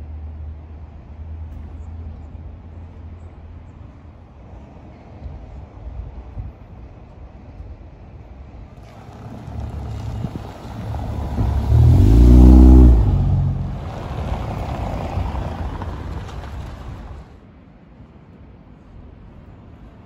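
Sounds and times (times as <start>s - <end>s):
street traffic: 0.0s - 20.0s
car engine accelerating past: 8.8s - 17.3s.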